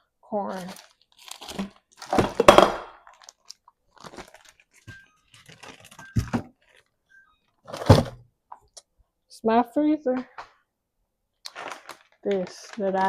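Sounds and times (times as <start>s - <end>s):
plastic bag of frozen corn crinkling: 0.5s - 7.0s, 11.4s - 13.0s.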